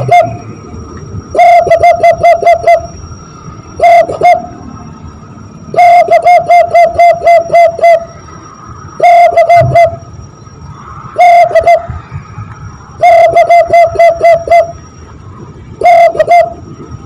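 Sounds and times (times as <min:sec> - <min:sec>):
dove call blown through hands: 0:00.0 - 0:00.4, 0:01.3 - 0:03.0, 0:03.8 - 0:04.6, 0:05.7 - 0:08.1, 0:09.0 - 0:10.0, 0:11.2 - 0:12.0, 0:13.0 - 0:14.8, 0:15.8 - 0:16.6.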